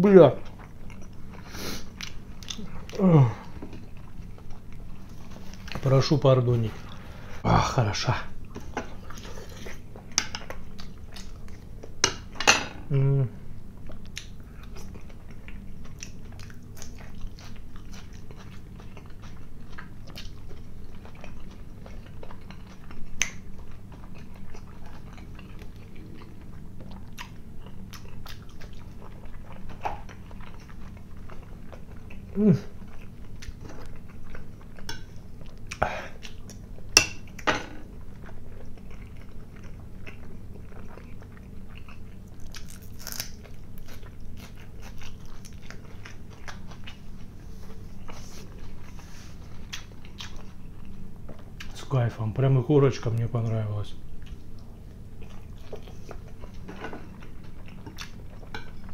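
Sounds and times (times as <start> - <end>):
person chewing food: 0.4 - 5.9, 8.4 - 12.4, 13.1 - 51.8, 54.1 - 58.9
low throat sound: 2.6 - 3.6, 12.8 - 13.4.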